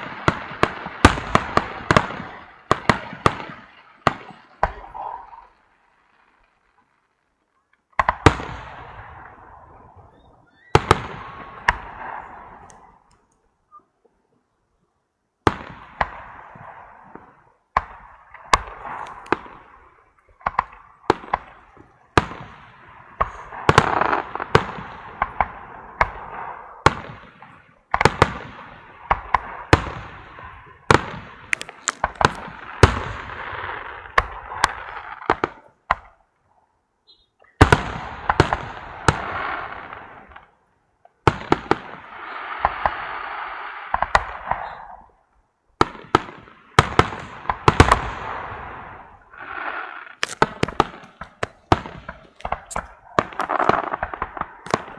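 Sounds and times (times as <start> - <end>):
firework bangs: 0.0 - 6.8, 8.0 - 13.1, 15.4 - 36.2, 37.6 - 40.6, 41.2 - 45.2, 45.8 - 54.9
firework crackling: 0.0 - 7.4, 15.5 - 36.1, 37.6 - 40.4, 41.3 - 45.2, 45.8 - 54.9.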